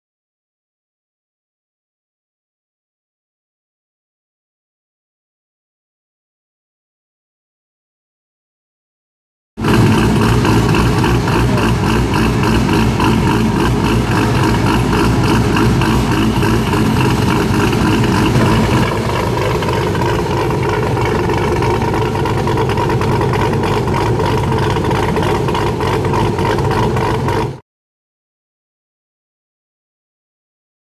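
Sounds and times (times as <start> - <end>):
car engine idling: 9.6 - 27.6.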